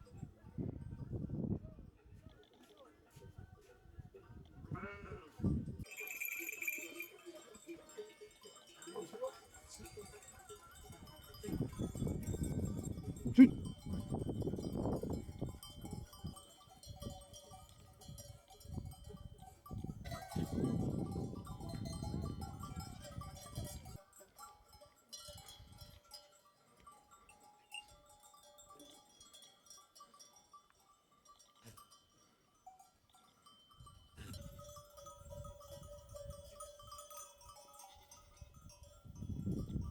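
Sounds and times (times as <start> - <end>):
sheep bells clinking: 0.0 - 3.9, 4.8 - 39.9
sheep bleating: 4.7 - 5.4.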